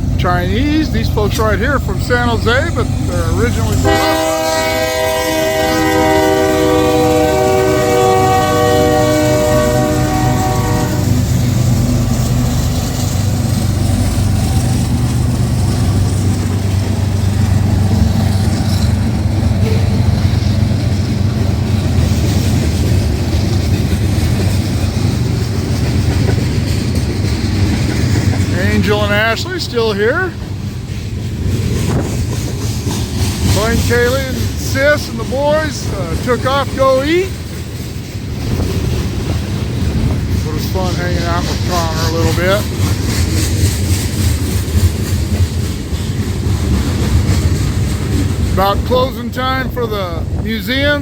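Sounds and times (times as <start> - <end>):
train rolling past rumble: 0.0 - 51.0
locomotive air horn blast: 3.4 - 11.4.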